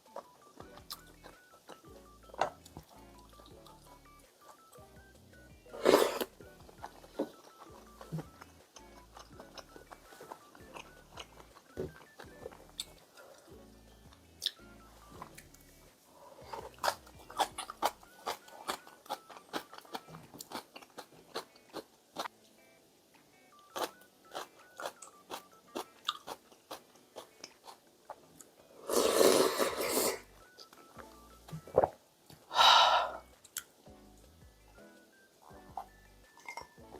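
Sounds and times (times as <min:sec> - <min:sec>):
person chewing food: 0:00.0 - 0:05.0, 0:05.7 - 0:15.7, 0:16.4 - 0:22.3, 0:23.6 - 0:32.0.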